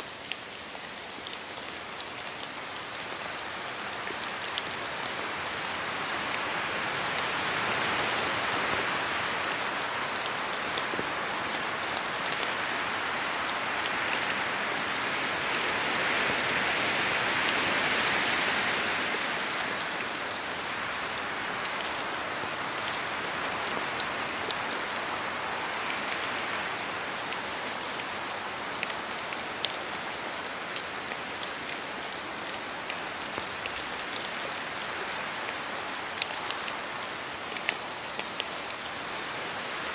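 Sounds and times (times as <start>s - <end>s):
raindrops ticking close by: 0.0s - 15.7s
rain falling in a forest: 0.0s - 39.9s.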